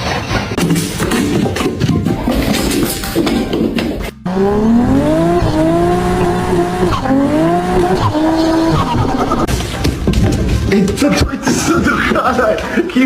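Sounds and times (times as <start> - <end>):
race car engine accelerating: 4.1 - 9.5.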